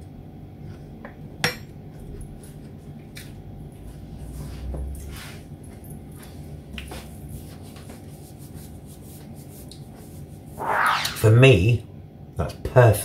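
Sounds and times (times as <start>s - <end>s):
soft chewing of food: 0.5s - 8.0s.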